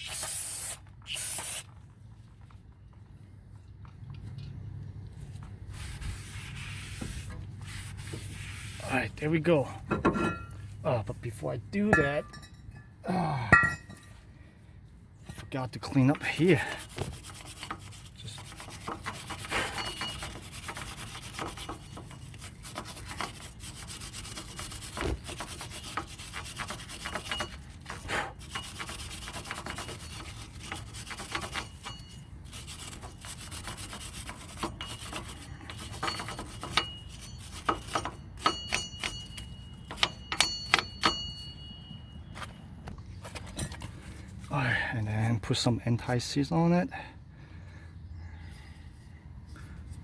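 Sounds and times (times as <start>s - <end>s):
scratchy scrubbing of metal: 5.2s - 10.8s, 15.2s - 42.5s
sharp metallic clinks: 35.6s - 42.8s.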